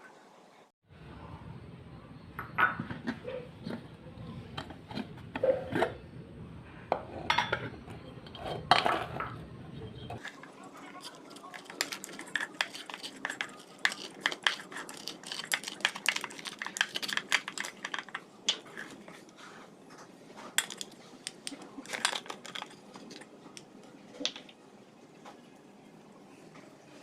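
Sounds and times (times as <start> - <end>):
utensils scraping cookware: 6.9 - 9.4.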